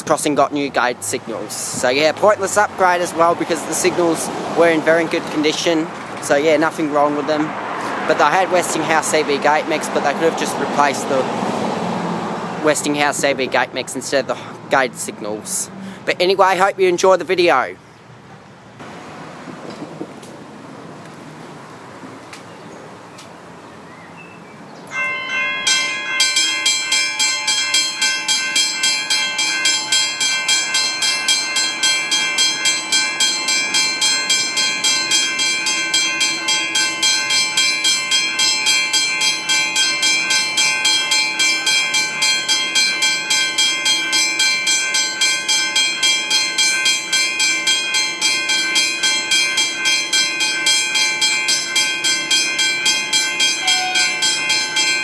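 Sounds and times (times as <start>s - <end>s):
level crossing bell ringing: 24.9s - 55.0s.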